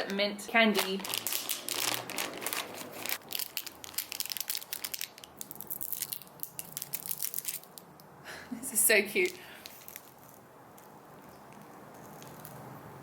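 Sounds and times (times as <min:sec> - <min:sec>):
candy wrapper tearing and crinkling: 0:00.8 - 0:07.9, 0:09.2 - 0:12.6.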